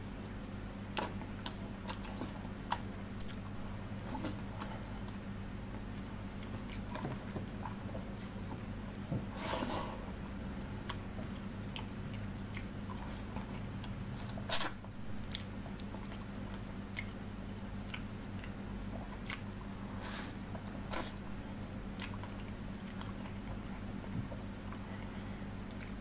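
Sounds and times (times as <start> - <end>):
wet chewing and biting: 10.2 - 21.2, 21.9 - 25.0, 25.6 - 26.0.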